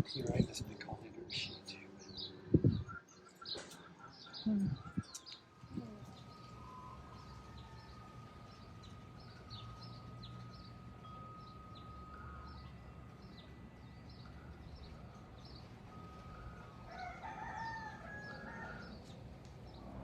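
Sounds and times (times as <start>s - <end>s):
small birds chirping: 0.0s - 20.0s
thin steady high tone: 4.5s - 18.9s.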